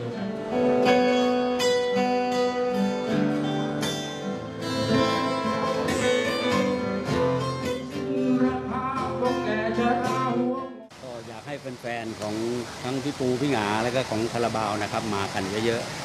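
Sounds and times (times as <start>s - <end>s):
acoustic guitar strumming: 0.0s - 10.9s.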